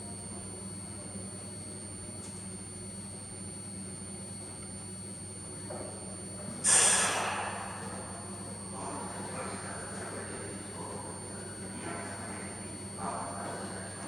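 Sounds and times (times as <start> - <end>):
loud hiss: 6.6 - 7.5.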